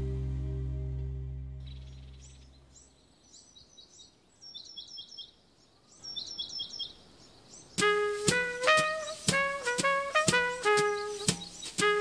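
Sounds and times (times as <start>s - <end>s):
held music chord: 0.0s - 2.7s, 7.8s - 12.0s
small birds chirping: 1.6s - 9.5s, 10.4s - 12.0s
jazz music with brass: 7.8s - 12.0s.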